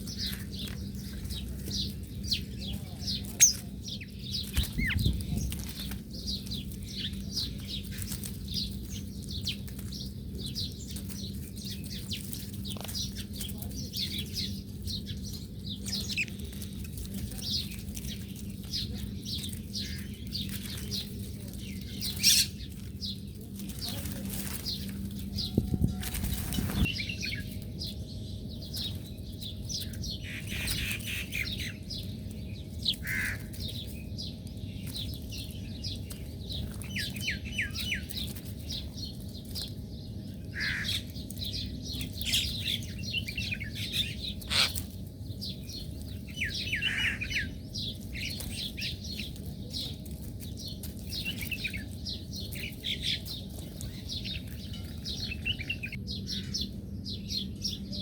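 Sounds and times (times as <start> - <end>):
low background hum: 0.0 - 58.0
small birds chirping: 0.0 - 58.0.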